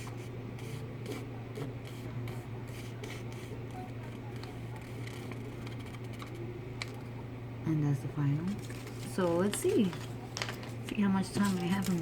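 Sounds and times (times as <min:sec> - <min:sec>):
steady low hum: 0:00.0 - 0:12.0
cardboard and paper rustling: 0:08.5 - 0:12.0.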